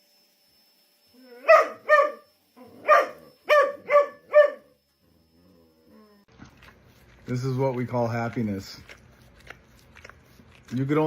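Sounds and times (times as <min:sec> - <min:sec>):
dog barking: 0:01.4 - 0:04.8.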